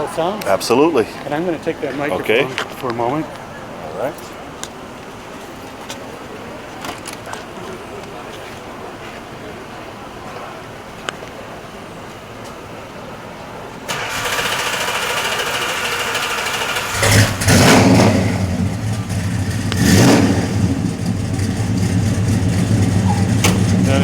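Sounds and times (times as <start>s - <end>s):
starter motor cranking: 13.9s - 17.9s
car engine starting and idling: 13.9s - 24.0s.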